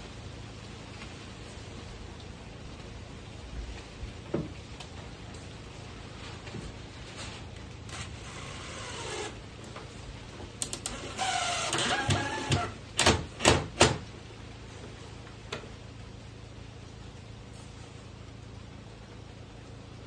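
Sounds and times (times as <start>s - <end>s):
wavering creak: 7.2s - 9.4s, 10.6s - 12.8s.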